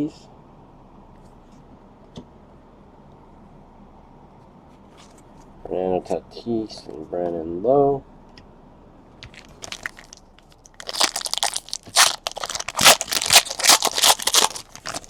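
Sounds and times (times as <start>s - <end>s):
wrappers tearing and crinkling: 9.2s - 15.0s.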